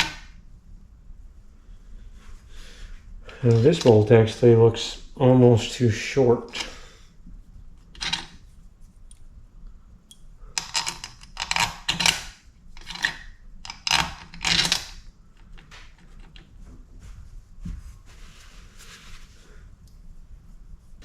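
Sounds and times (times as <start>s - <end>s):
bolts and tools clinking: 3.4s - 4.1s, 10.6s - 15.0s.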